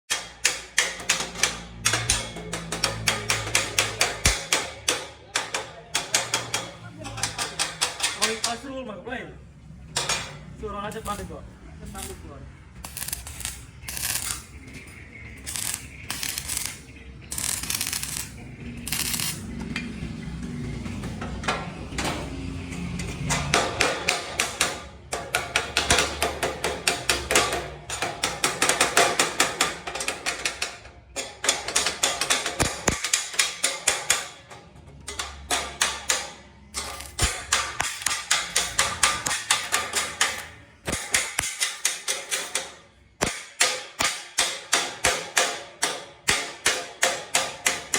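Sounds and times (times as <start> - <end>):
scattered knocks: 0.3 - 8.6.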